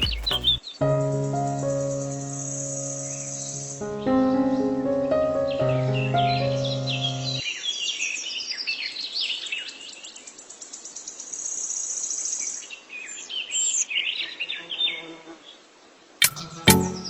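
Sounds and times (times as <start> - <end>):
music with plucked notes: 16.7 - 17.0.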